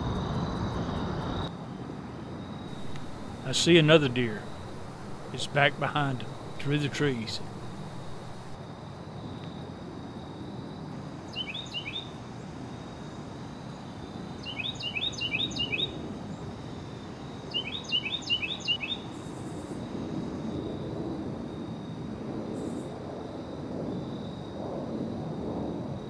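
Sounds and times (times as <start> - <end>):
outdoor background rush: 0.0 - 11.4
songbird singing: 2.7 - 8.6, 11.3 - 12.1, 14.4 - 15.9, 17.5 - 19.0.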